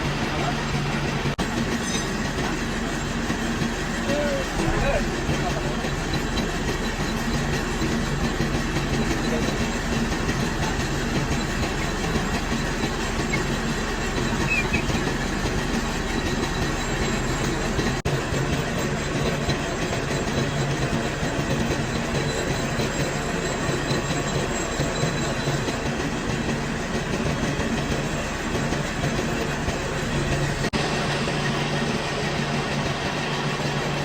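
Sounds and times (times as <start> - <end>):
metal lathe running: 0.0 - 34.0.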